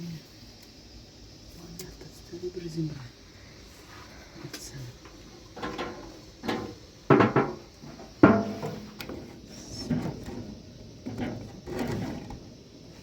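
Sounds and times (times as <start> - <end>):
objects knocking and clattering: 5.4 - 12.5.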